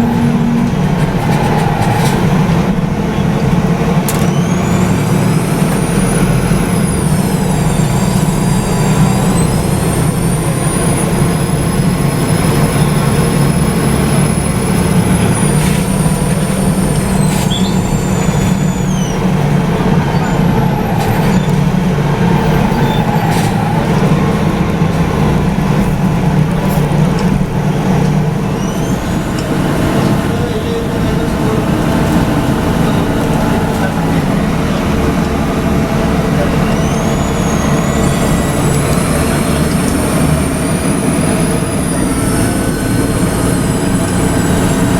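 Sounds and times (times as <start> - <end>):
bus diesel engine drone: 0.0 - 44.9
high-pitched whistle: 4.2 - 19.5, 36.6 - 44.6.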